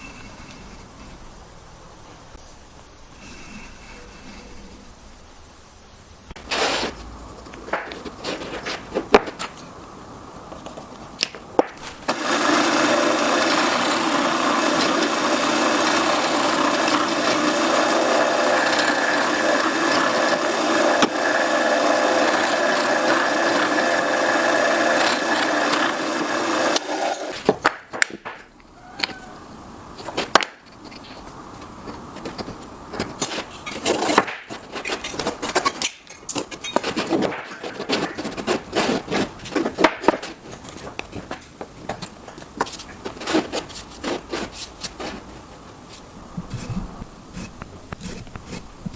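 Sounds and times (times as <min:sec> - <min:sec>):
knocks and handling on wood: 0:07.5 - 0:09.6, 0:27.4 - 0:29.2, 0:30.0 - 0:45.4
woodworking power tool running: 0:11.8 - 0:27.4.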